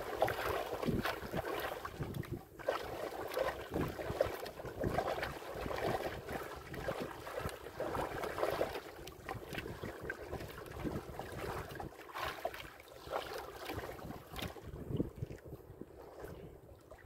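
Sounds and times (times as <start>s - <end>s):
water lapping against boat hull: 0.0s - 17.0s
wind gusting on microphone: 0.8s - 2.4s, 13.7s - 16.7s.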